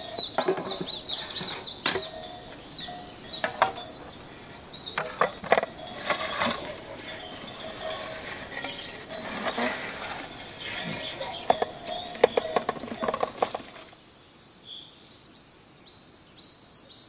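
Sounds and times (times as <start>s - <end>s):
glass jars clinking on metal tray: 0.0s - 4.2s, 4.9s - 13.8s
small birds chirping: 0.0s - 17.0s.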